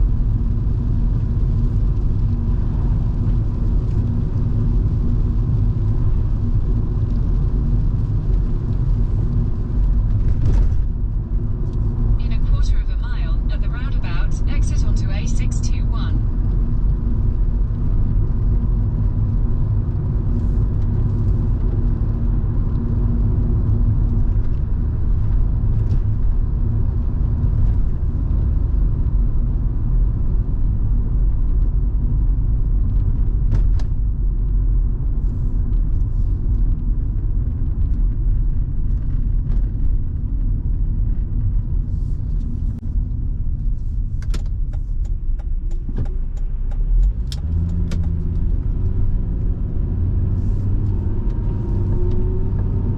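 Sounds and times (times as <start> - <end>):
car engine and road noise: 0.0 - 52.9.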